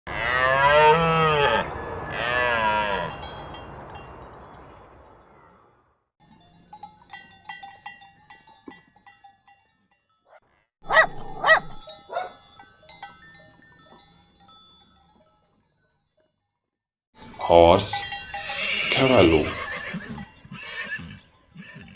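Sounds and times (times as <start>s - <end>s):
livestock bleating: 0.1s - 3.1s
bells clanking: 1.7s - 20.6s.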